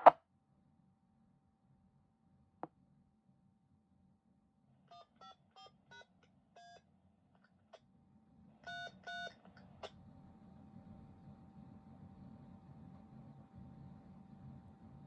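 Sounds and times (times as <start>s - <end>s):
faint keypad tone beeps: 8.7s - 9.4s.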